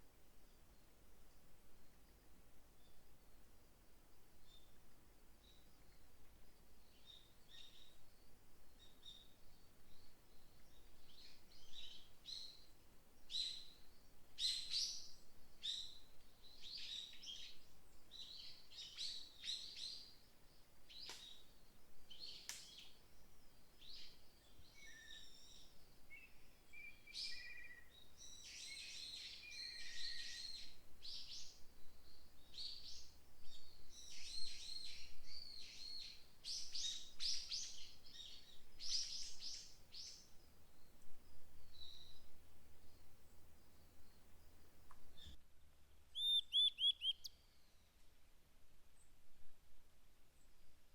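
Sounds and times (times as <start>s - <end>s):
songbirds chirping: 0.0s - 48.0s
low whistled bird notes: 46.1s - 47.4s.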